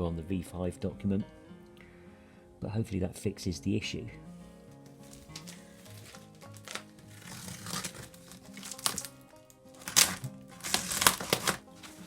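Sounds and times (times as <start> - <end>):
background music: 0.0 - 12.0
packaging crinkling: 4.8 - 12.0.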